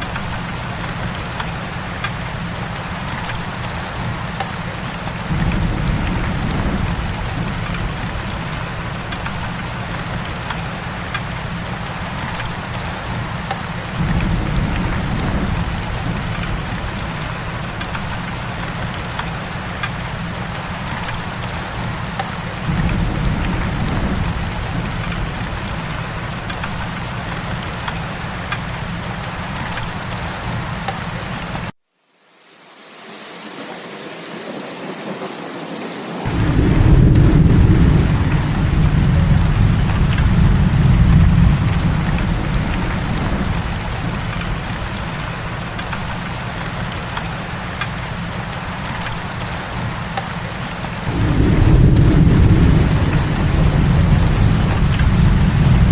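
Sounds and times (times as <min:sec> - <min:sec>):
heavy rain: 0:00.0 - 0:31.7, 0:32.4 - 0:55.9
low roll of thunder: 0:05.3 - 0:10.5, 0:13.8 - 0:19.2, 0:22.6 - 0:27.4, 0:36.2 - 0:46.2, 0:50.9 - 0:55.9
low rumble: 0:51.0 - 0:55.9.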